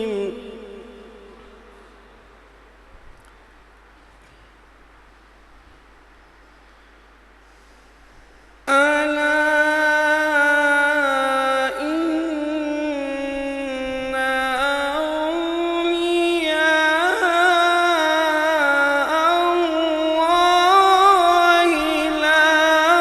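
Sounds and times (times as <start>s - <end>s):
man reciting melodically: 0.0s - 2.5s, 8.6s - 23.0s
faint hiss: 0.0s - 23.0s.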